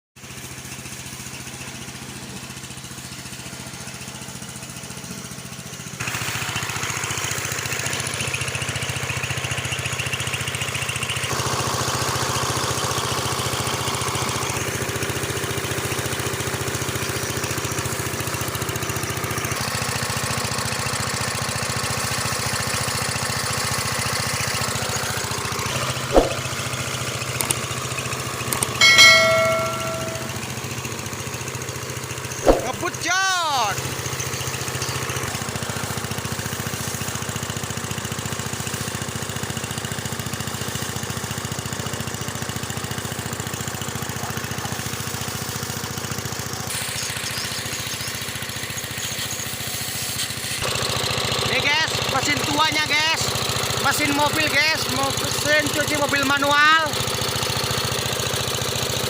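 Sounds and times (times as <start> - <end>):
small engine running: 0.2 - 59.0
sharp knock: 26.2 - 26.5, 28.8 - 30.4, 32.5 - 32.8
short pitched tone: 26.2 - 26.5, 28.8 - 30.5, 32.5 - 32.8.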